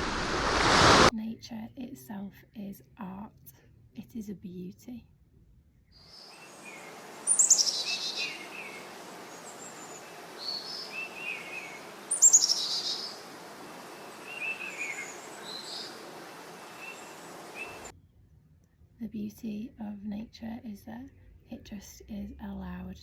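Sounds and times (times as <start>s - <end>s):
outdoor hiss: 0.0s - 1.1s, 6.1s - 17.9s
bird chirps: 6.0s - 17.9s
bird trilling: 6.2s - 17.9s.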